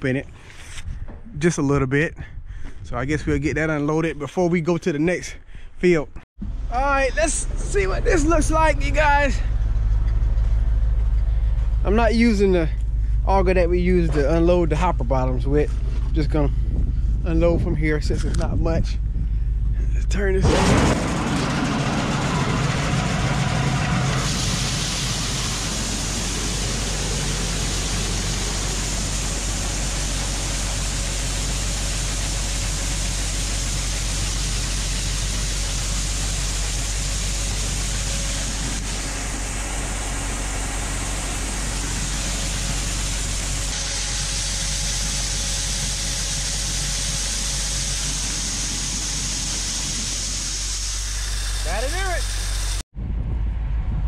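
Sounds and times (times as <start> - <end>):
low engine hum: 6.4 - 54.0
rushing hiss of corn emptying: 20.5 - 52.2.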